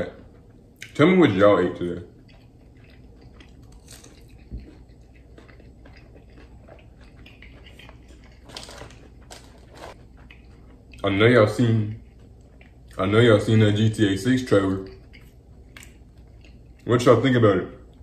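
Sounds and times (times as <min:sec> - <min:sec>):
person chewing crispy chicken: 0:00.2 - 0:13.6, 0:14.3 - 0:17.0.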